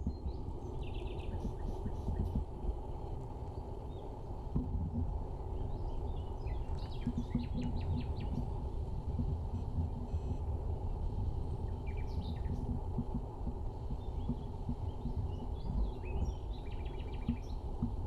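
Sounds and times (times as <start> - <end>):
small birds chirping: 0.0 - 2.4, 5.4 - 10.4, 11.6 - 18.0.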